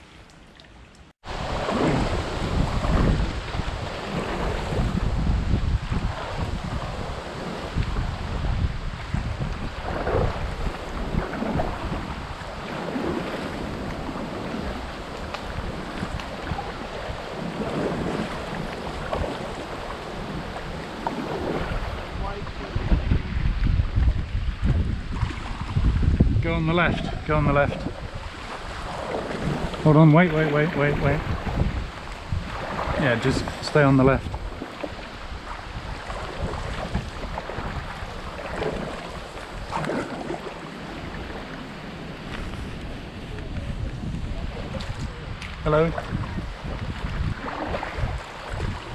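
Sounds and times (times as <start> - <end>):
river water rushing: 1.2 - 8.9, 9.6 - 22.8, 27.2 - 43.9
wind buffeting microphone: 1.2 - 48.9.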